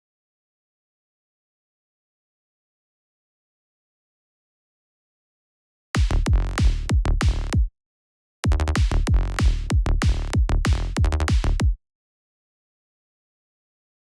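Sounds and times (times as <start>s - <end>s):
electronic kick drum and bass: 6.0s - 7.7s, 8.4s - 11.8s.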